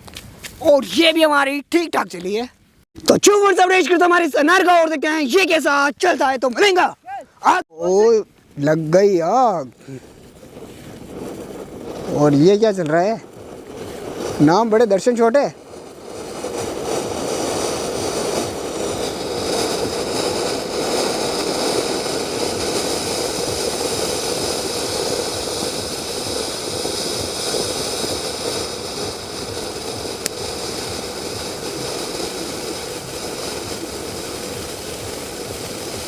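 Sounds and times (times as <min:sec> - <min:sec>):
firework spark jet hissing: 0:09.8 - 0:36.0.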